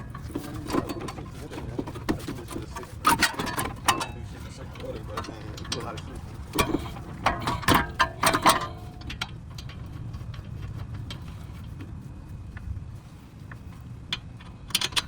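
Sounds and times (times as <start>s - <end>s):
metal tools clanking: 0.0s - 10.4s.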